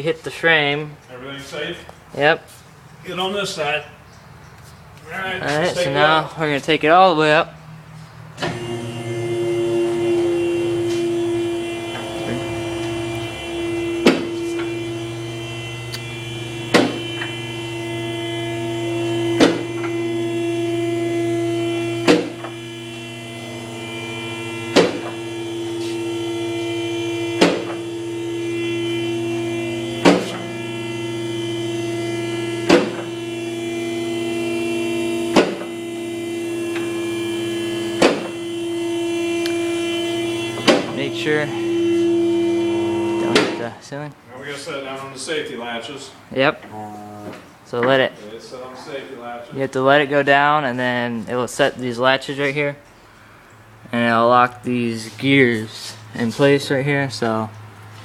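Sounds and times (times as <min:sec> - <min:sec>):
hydraulic pump motor running: 0:07.9 - 0:43.8.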